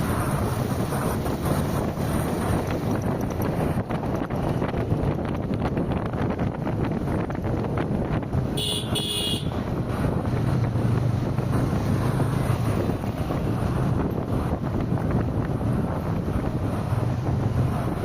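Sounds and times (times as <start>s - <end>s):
car road and wind noise: 0.0s - 18.0s
short vehicle horn beeps: 8.6s - 9.5s.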